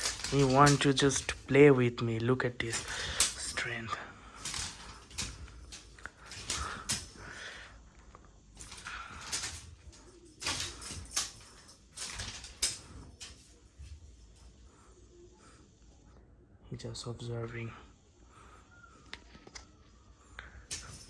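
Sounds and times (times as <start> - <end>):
cat scuffling with toy: 0.0 - 1.6, 4.4 - 7.6.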